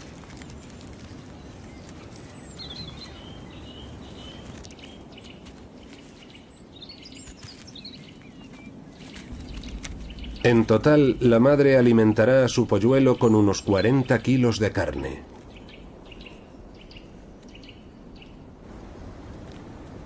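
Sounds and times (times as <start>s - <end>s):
low background noise: 0.0s - 20.0s.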